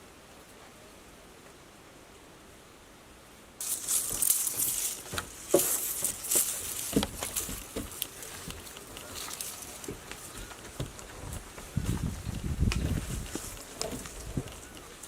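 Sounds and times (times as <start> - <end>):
faint steady hiss: 0.0 - 15.0
loud rustling and crackling: 3.6 - 15.0.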